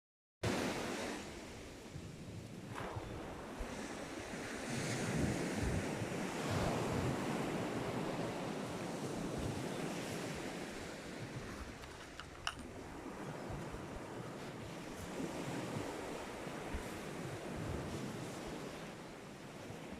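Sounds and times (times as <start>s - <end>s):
sea waves washing onto beach: 0.4s - 19.9s
wind buffeting microphone: 0.5s - 19.9s
sharp click: 11.8s - 12.7s.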